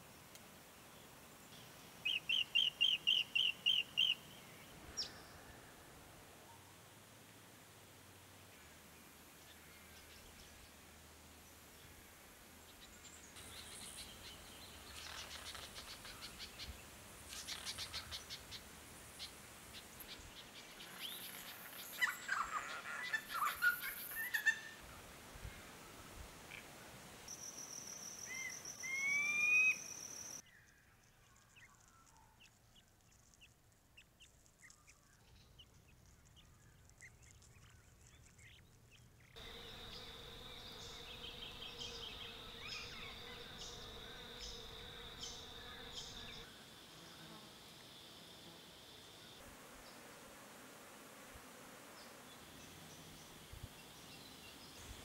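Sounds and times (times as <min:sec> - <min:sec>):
insect buzz: 0:39.4 - 0:55.0.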